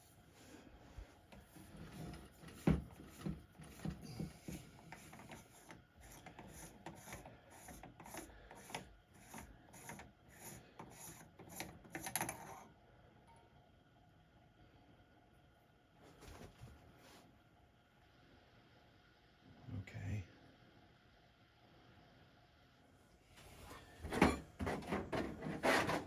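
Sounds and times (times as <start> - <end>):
rubbing scraping strokes: 24.1 - 26.0.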